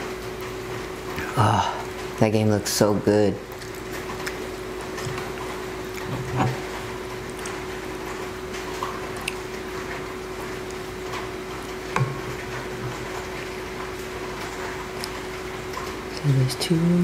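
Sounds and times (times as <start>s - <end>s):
steady rain: 0.0s - 5.9s
wet chewing of noodles: 3.4s - 16.1s.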